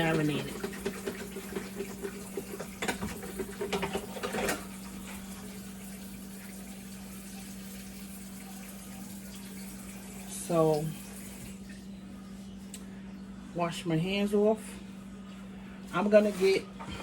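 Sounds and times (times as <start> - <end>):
bowl and utensils clattering: 0.0 - 4.9.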